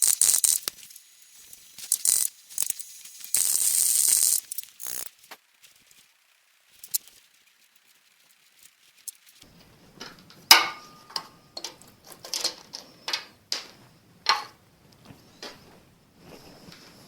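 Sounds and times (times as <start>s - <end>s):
hand tools knocking on metal: 10.0s - 14.6s.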